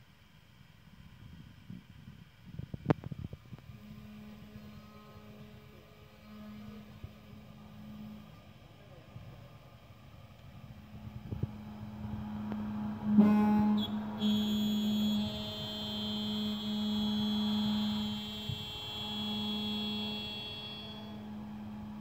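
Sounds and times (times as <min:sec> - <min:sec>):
high whine: 0:00.9 - 0:22.0
milling machine humming: 0:03.5 - 0:22.0.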